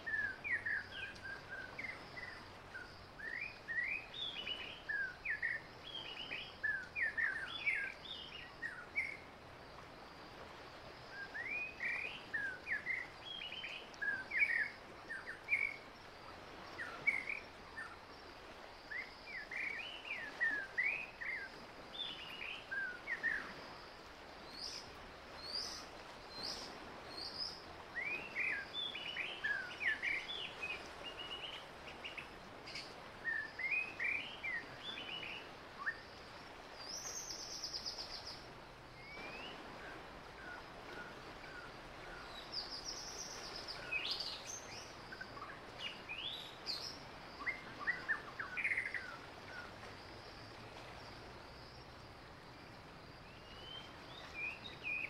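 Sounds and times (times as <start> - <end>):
songbirds singing: 0.0 - 9.4, 24.4 - 36.1, 36.8 - 50.1
faint high hiss: 0.0 - 55.0.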